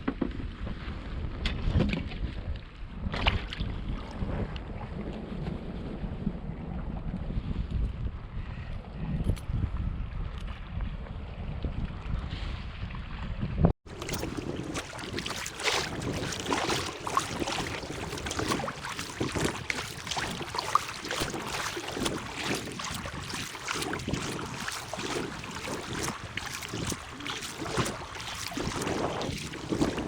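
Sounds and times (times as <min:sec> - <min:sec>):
water splashing around kayak: 0:13.8 - 0:30.0.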